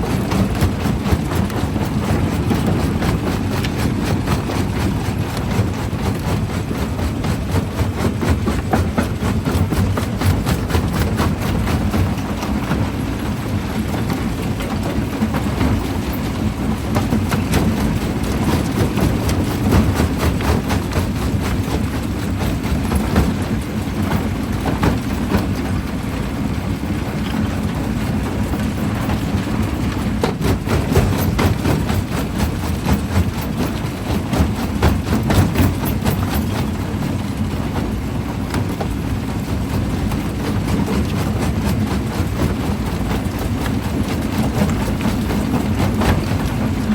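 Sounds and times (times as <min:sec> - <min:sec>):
jaw crusher drone: 0:00.0 - 0:09.3
jaw crusher rumbling: 0:00.0 - 0:25.1.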